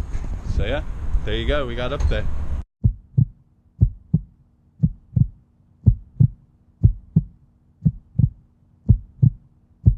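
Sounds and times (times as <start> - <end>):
faint steady hum: 0.6 - 9.9
heartbeat thumps: 2.8 - 9.9.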